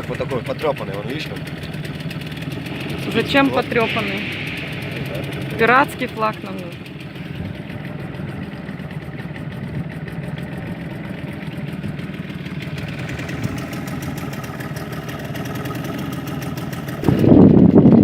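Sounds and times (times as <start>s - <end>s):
outboard motor running: 0.0s - 18.0s
rough rush of noise: 1.2s - 7.9s, 12.7s - 14.6s.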